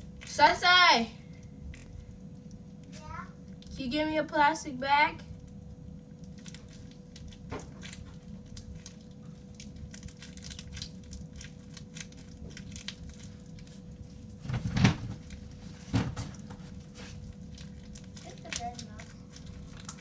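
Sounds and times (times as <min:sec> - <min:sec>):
crunchy slime crackling: 0:05.2 - 0:20.0.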